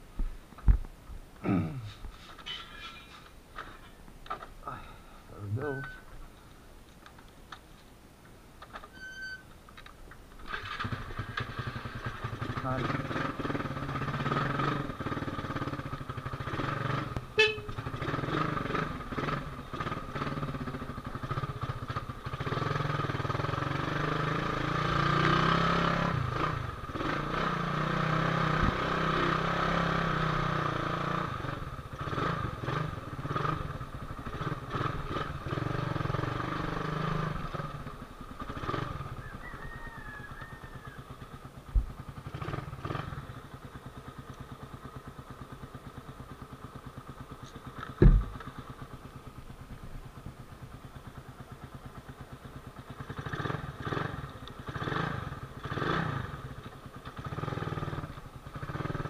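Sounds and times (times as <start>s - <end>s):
motorcycle engine running: 10.4s - 59.0s
horn toot: 17.4s - 17.9s.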